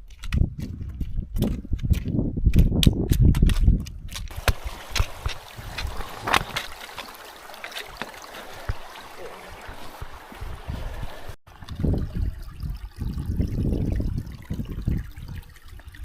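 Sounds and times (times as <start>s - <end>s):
stream running: 4.3s - 16.0s.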